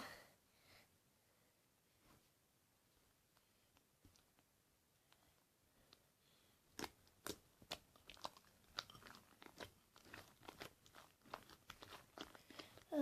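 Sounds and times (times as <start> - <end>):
slime squeezed with wet pops: 6.7 - 13.0.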